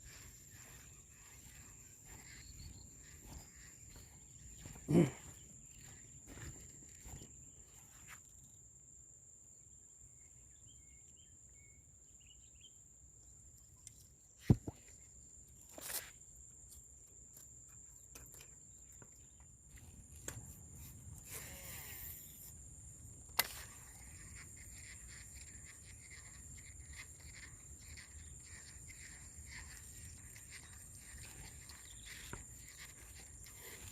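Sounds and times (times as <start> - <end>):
high-pitched insect drone: 0.0 - 8.2, 21.2 - 33.9.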